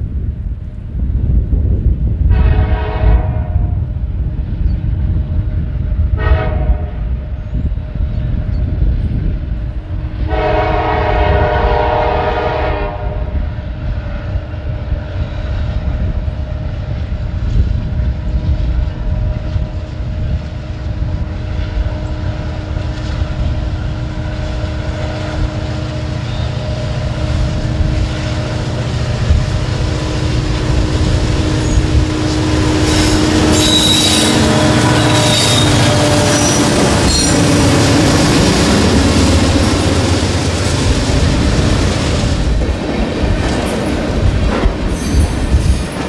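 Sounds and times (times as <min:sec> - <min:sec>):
train cars rolling: 0:13.8 - 0:46.0
high-pitched wheel squeals: 0:26.1 - 0:26.8, 0:32.8 - 0:37.7.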